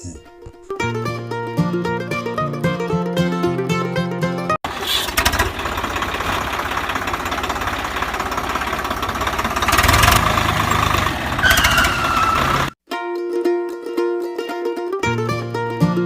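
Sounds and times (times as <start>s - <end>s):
small motor rattling: 4.8s - 12.8s.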